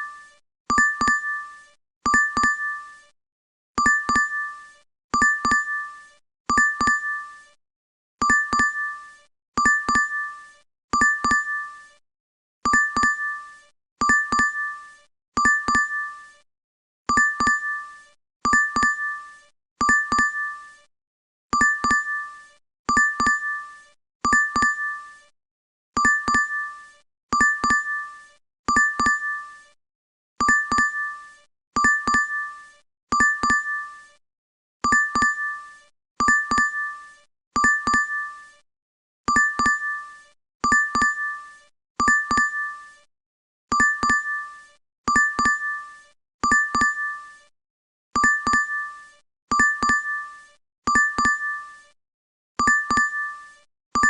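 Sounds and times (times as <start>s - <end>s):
two-tone notification ding: 2.1s - 2.8s, 5.2s - 5.7s, 6.5s - 7.1s, 11.0s - 11.6s, 15.4s - 16.0s, 27.4s - 27.9s, 30.4s - 30.9s, 37.6s - 38.1s, 46.4s - 47.1s, 48.2s - 48.8s, 49.5s - 50.2s, 52.6s - 53.2s.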